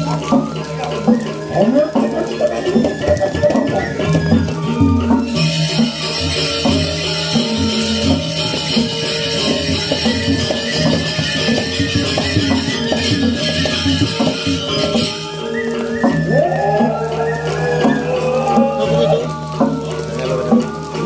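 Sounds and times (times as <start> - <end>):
gamelan music: 0.0 - 21.0.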